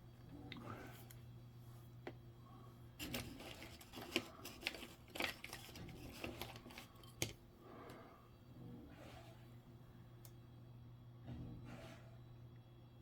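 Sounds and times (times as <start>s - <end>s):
faint steady hum: 0.0s - 13.0s
rustling scrapes: 3.0s - 7.0s.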